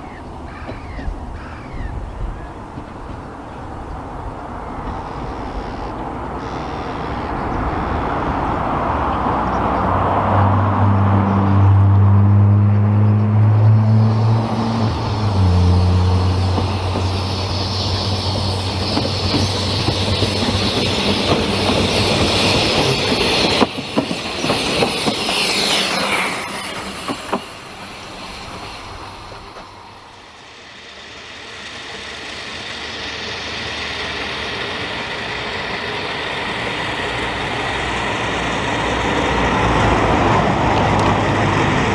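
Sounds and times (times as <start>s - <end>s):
locomotive low drone: 0.0s - 41.9s
train rumble: 0.0s - 41.9s
wheel squeal: 14.0s - 29.9s
wheels clicking over rail joints: 14.8s - 29.8s.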